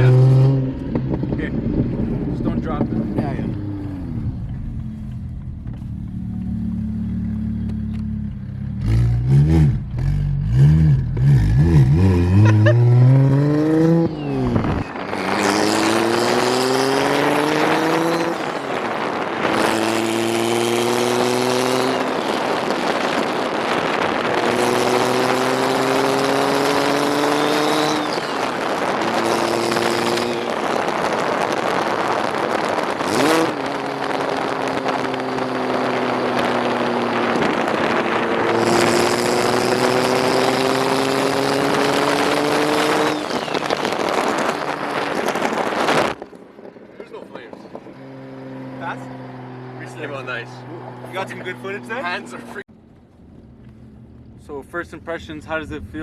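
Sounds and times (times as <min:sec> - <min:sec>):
car engine revving and accelerating: 0:00.0 - 0:46.4, 0:47.1 - 0:52.7
wind on microphone: 0:11.0 - 0:48.6.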